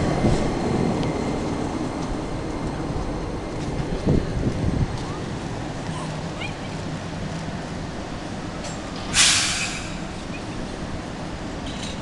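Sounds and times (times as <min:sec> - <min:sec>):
electric train humming: 0:00.0 - 0:11.8
compressed air hiss: 0:09.1 - 0:10.1.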